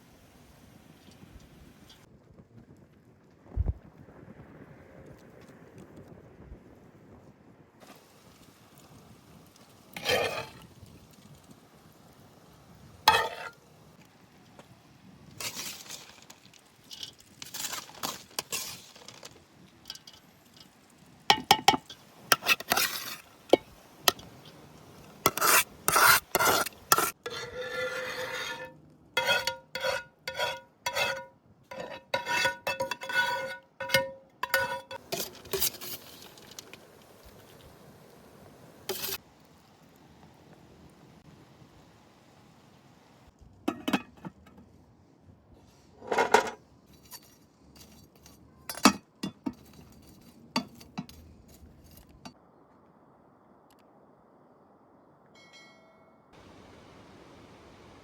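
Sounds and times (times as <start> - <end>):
metal spoon scraping dishes: 10.0 - 10.6, 13.1 - 13.6, 21.3 - 24.3, 25.3 - 36.0, 38.9 - 39.2, 46.0 - 52.4.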